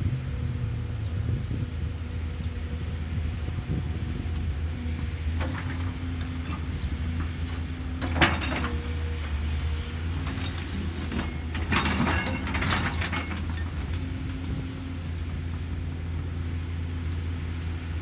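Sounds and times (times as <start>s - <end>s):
excavator diesel engine running: 0.0s - 18.0s
clattering: 10.4s - 13.6s.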